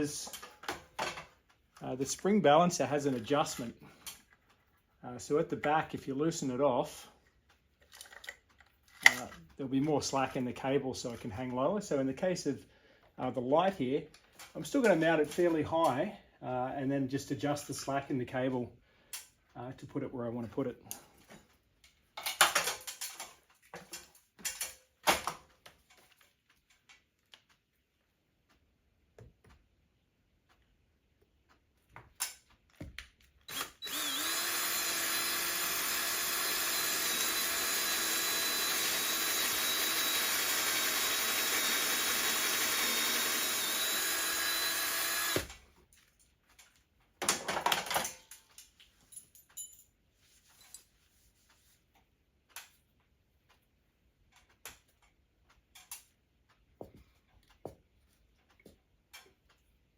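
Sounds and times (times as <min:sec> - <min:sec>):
power drill running: 0:33.5 - 0:45.5.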